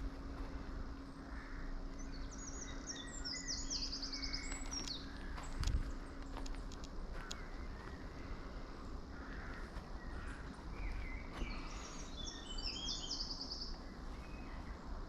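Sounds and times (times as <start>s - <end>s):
small bird chirping and trilling: 10.8s - 14.6s.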